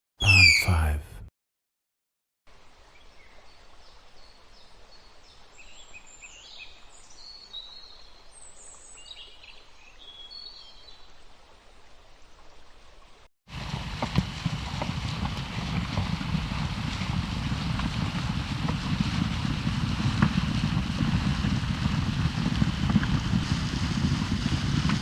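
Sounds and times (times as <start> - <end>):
low steady hiss: 2.5 - 13.2.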